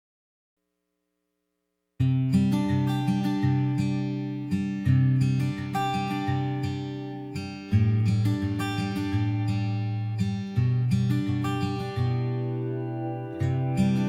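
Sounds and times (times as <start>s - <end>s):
acoustic guitar strumming: 2.1s - 14.0s.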